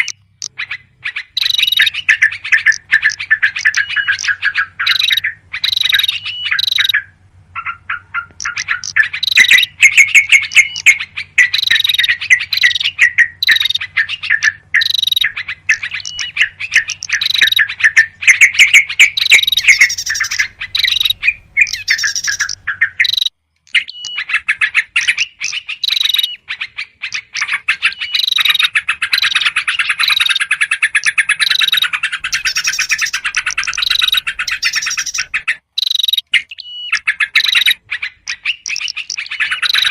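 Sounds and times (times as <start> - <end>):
faint steady hum: 0.0 - 23.9
songbirds chirping and trilling: 0.0 - 39.9.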